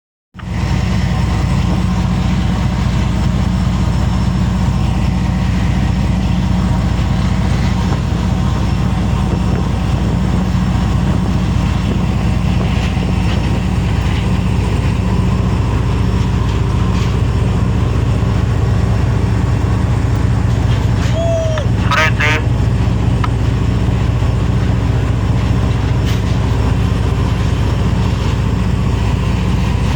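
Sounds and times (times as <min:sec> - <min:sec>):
boat engine drone: 0:00.4 - 0:29.9.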